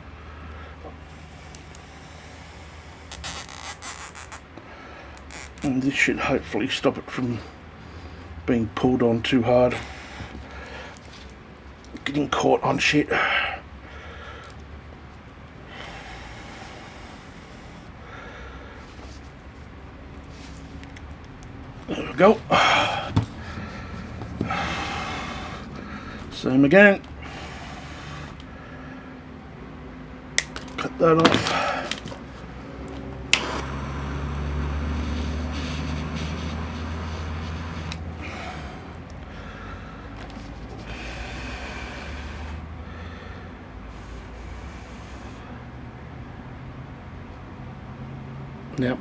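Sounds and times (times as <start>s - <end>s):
man breathing heavily: 0.0s - 3.1s, 4.6s - 5.2s, 7.3s - 8.4s, 9.7s - 11.4s, 13.1s - 14.8s, 15.6s - 19.5s, 21.8s - 26.4s, 27.1s - 29.6s, 31.4s - 32.6s, 33.8s - 46.3s
steady low hum: 0.0s - 47.9s.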